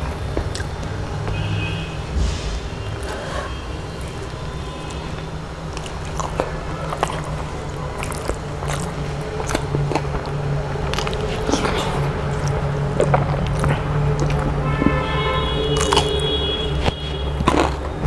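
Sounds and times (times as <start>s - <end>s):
person chewing food: 0.0s - 1.4s, 3.0s - 18.0s
steady low hum: 0.0s - 18.0s
sharp mouth clicks: 0.4s - 0.9s, 5.1s - 14.6s, 15.7s - 17.9s.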